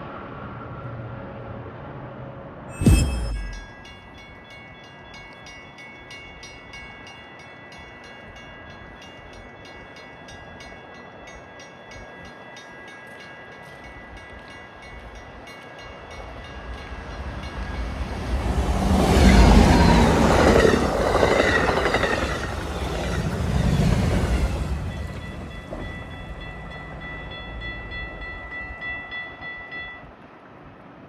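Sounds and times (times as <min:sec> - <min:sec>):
loud thud: 0:02.7 - 0:03.8
railroad crossing bell ringing: 0:02.7 - 0:30.2
train rumble: 0:11.9 - 0:30.2.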